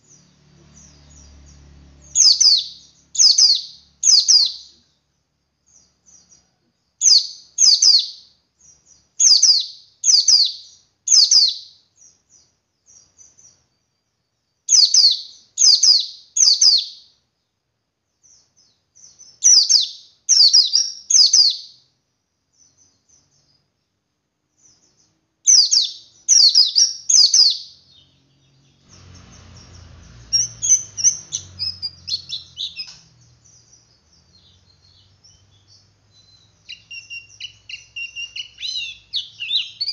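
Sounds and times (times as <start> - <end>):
bird twittering rapidly: 0.0 - 4.7, 7.0 - 13.6, 14.7 - 17.1, 19.0 - 21.8, 24.6 - 39.9
bird calling sharp high notes: 36.2 - 39.9.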